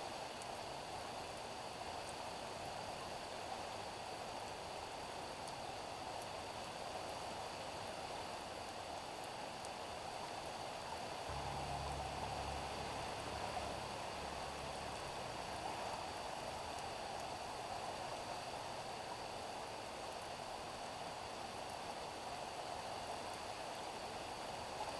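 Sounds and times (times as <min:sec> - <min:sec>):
rain falling on street: 0:00.1 - 0:24.9
low rumble: 0:11.3 - 0:16.0.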